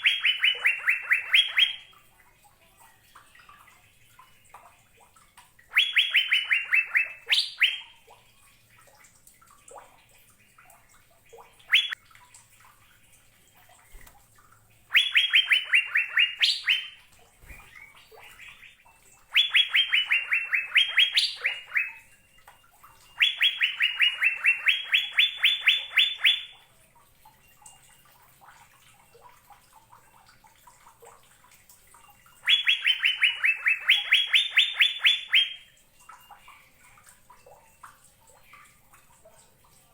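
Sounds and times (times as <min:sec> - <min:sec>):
bird singing rapid repeated notes: 0:00.0 - 0:01.9, 0:05.6 - 0:08.0, 0:11.3 - 0:12.0, 0:14.9 - 0:26.6, 0:32.2 - 0:36.7
faint bird chirps: 0:00.0 - 0:02.0, 0:05.7 - 0:08.9, 0:11.2 - 0:12.0, 0:14.9 - 0:26.7, 0:32.0 - 0:39.9.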